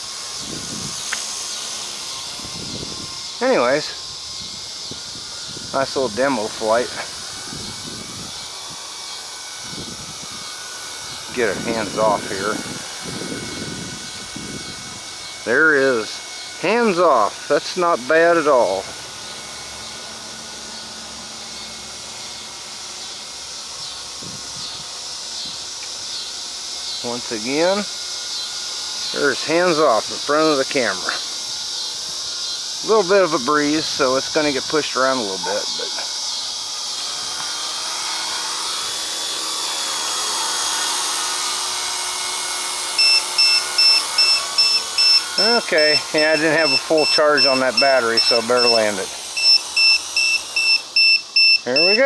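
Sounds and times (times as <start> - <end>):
toy helicopter motor whine: 0.0 - 52.0
low-battery warning beep: 43.0 - 52.0.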